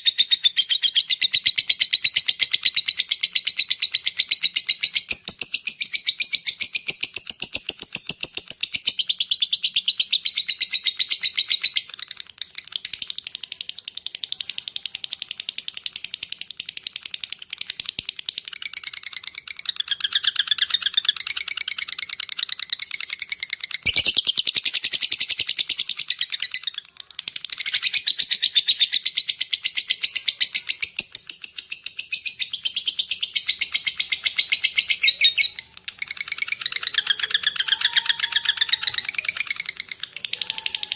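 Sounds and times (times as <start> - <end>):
lovebird chattering trill: 0.0 - 40.9.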